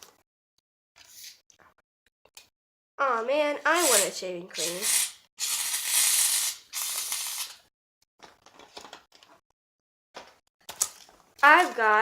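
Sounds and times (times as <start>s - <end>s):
aerosol can spraying: 3.8s - 7.6s.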